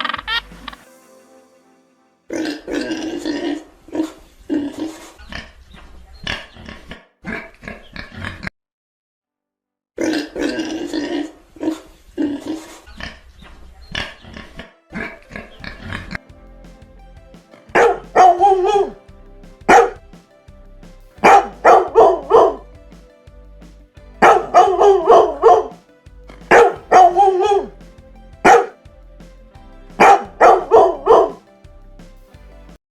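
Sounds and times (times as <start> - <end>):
soft background music: 0.0 - 5.2, 13.9 - 32.8.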